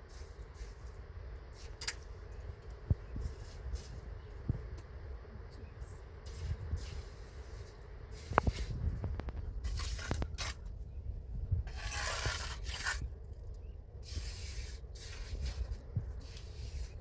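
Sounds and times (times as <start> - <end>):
scraping strokes: 9.6 - 10.7, 11.6 - 13.1, 14.0 - 17.0.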